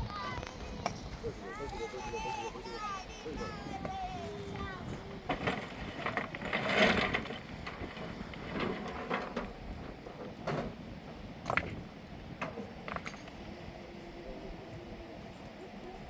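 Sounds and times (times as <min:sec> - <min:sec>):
rustling: 0:03.7 - 0:10.8
knocks and clatters: 0:05.3 - 0:11.8, 0:12.4 - 0:13.4.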